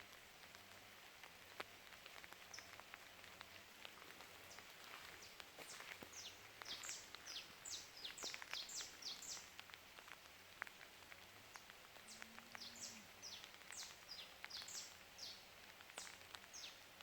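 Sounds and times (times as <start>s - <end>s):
light patter of small ticks: 0.0s - 17.0s
faint high bird calls: 12.0s - 15.4s.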